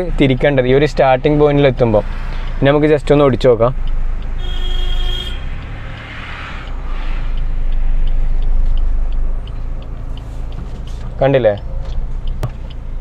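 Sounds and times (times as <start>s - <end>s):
car engine low hum: 0.0s - 13.0s.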